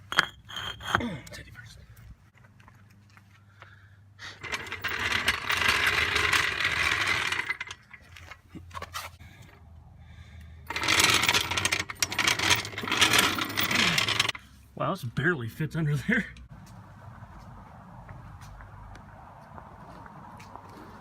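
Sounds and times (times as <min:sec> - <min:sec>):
tool rattling metallically: 0:04.4 - 0:08.3, 0:10.7 - 0:14.4.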